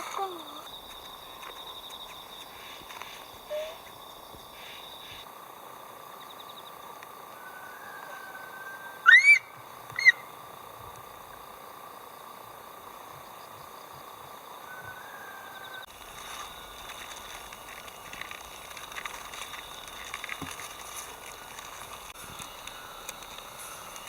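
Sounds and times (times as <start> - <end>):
bird calls: 0.0 - 5.2, 7.5 - 10.3
insects trilling: 0.0 - 24.0.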